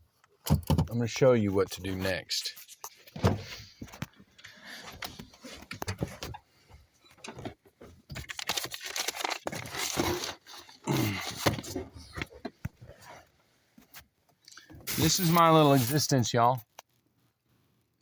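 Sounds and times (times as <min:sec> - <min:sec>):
handling rustling and clicks: 0:07.1 - 0:13.0
keys jangling: 0:14.9 - 0:16.0.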